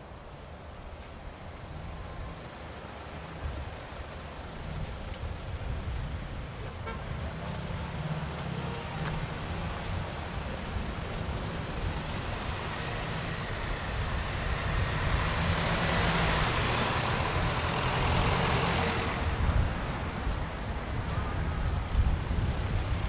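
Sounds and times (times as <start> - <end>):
low rumble of road traffic: 0.0 - 23.0.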